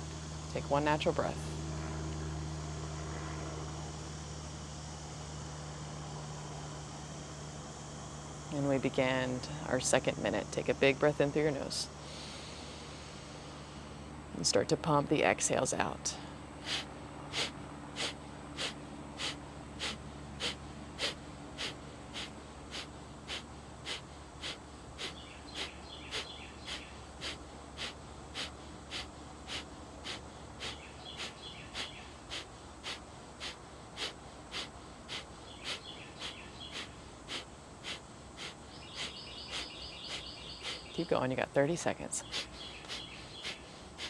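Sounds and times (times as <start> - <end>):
rapid forceful exhales: 11.9 - 14.2, 16.2 - 41.1, 42.2 - 44.0.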